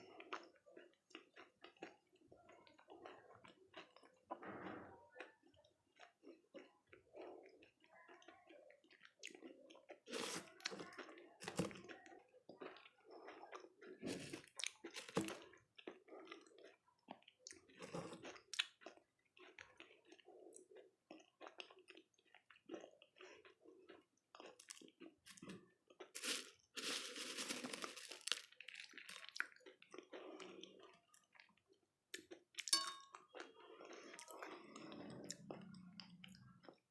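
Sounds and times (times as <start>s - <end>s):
crunching and chewing food: 0.0s - 36.9s.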